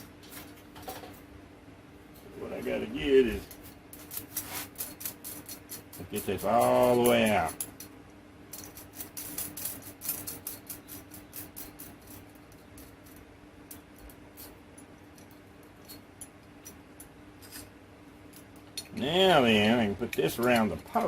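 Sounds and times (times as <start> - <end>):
faint steady hum: 0.0 - 21.0
metal hardware clicking and rattling: 3.3 - 7.9, 8.5 - 17.7, 20.0 - 21.0.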